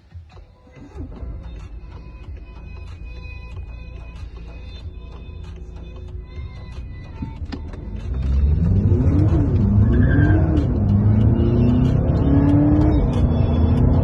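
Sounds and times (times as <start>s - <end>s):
diesel car engine accelerating: 1.0s - 14.0s.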